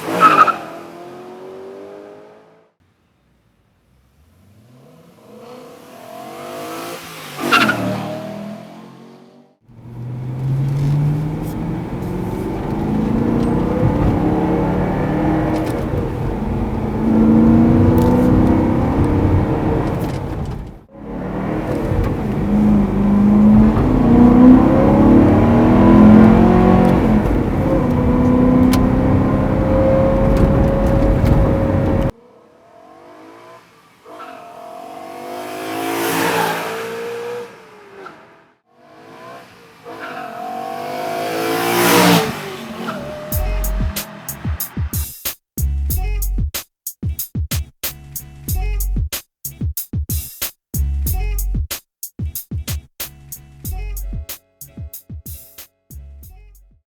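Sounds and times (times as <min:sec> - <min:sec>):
car engine accelerating hard: 0:03.8 - 0:44.7
car passing by: 0:03.9 - 0:44.9.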